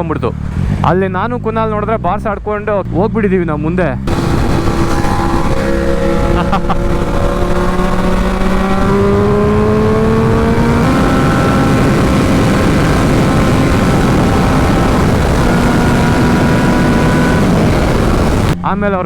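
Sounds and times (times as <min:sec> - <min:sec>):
heavy wind noise: 0:04.0 - 0:18.6
motorcycle engine pulling hard: 0:04.0 - 0:18.6.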